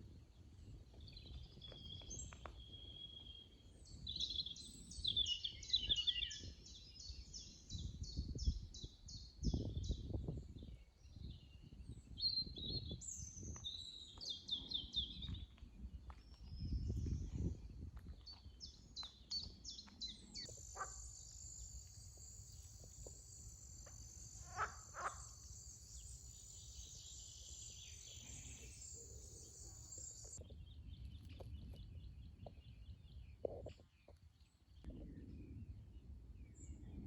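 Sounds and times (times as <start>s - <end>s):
bird calls: 18.3s - 32.6s.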